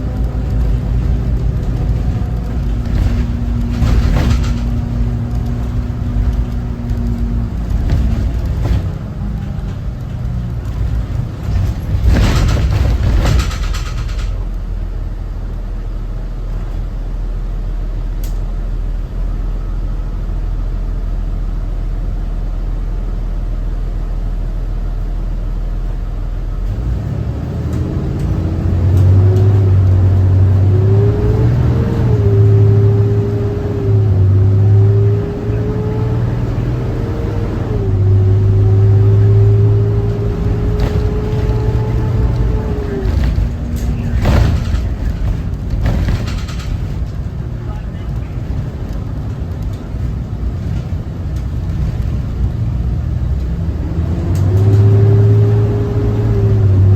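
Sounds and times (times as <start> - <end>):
diesel bus engine rumbling: 0.0 - 56.9
engine whine climbing in pitch: 26.6 - 56.9.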